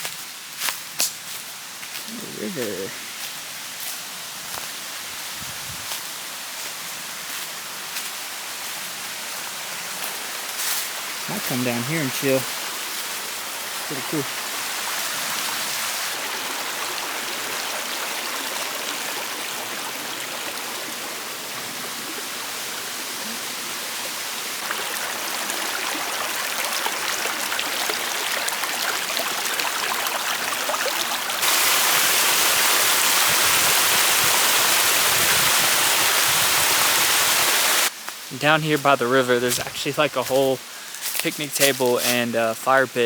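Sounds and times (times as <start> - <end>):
river water rushing: 11.0 - 37.9.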